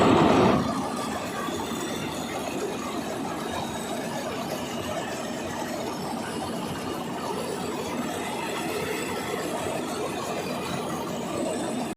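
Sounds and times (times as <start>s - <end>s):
tractor diesel engine running: 0.0s - 1.9s.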